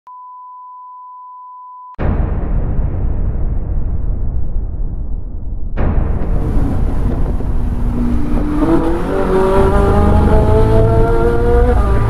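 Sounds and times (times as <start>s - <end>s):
car engine accelerating: 6.4s - 12.0s.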